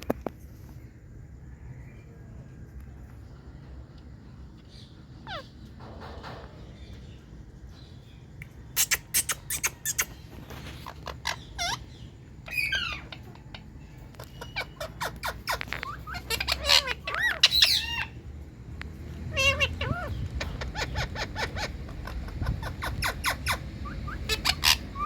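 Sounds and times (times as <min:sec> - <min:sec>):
parakeet squawking and chirping: 0:04.6 - 0:07.2, 0:08.7 - 0:18.3, 0:19.0 - 0:25.0.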